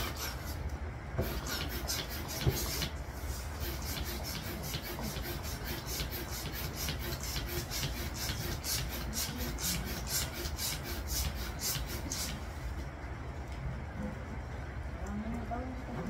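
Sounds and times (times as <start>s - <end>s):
hand pump hissing air: 0.0s - 12.6s.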